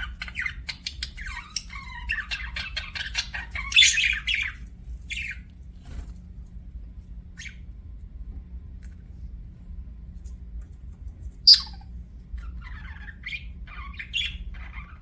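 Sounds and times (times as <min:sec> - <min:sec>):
budgerigar chirping and warbling: 0:00.0 - 0:05.4, 0:11.5 - 0:15.0
low steady hum: 0:00.0 - 0:15.0.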